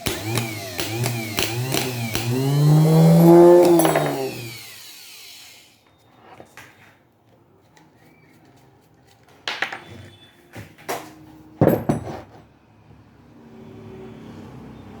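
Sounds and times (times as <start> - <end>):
metal parts clanking: 3.5 - 4.5.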